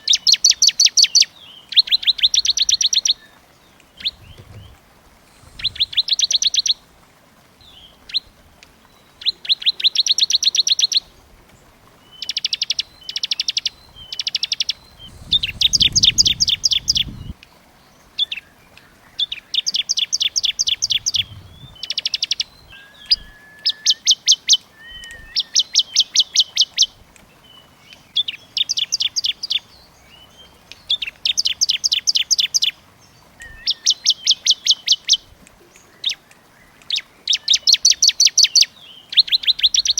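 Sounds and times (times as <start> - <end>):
songbird singing fast trills: 0.0 - 6.8, 12.0 - 39.9
bird short calls: 4.0 - 6.8, 14.9 - 17.4, 20.2 - 23.8.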